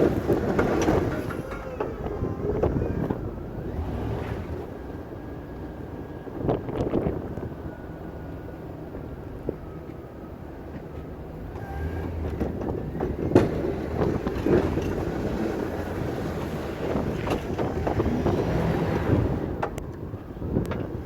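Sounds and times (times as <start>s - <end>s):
engine running: 10.8s - 20.5s
clattering and scraping: 12.0s - 19.8s.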